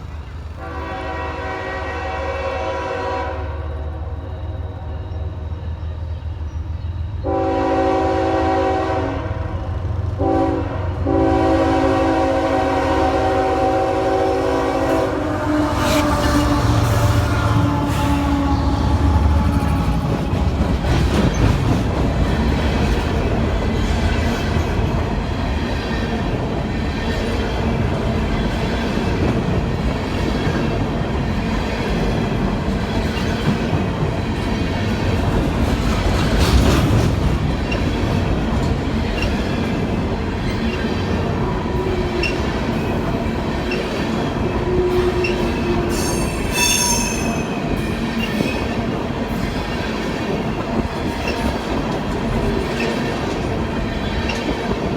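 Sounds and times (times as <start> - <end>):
train rumble and rail clatter: 0.0 - 54.9
wheels squealing: 45.2 - 47.6.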